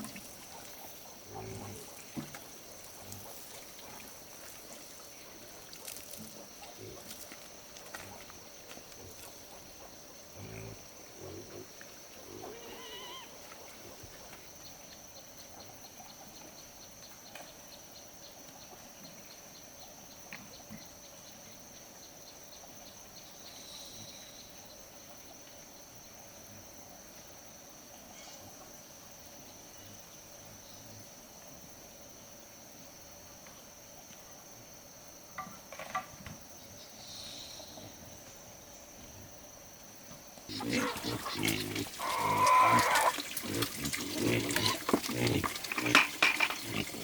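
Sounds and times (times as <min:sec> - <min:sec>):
insects chirring: 0:00.0 - 0:47.0
animal call: 0:12.3 - 0:13.8, 0:40.5 - 0:47.0.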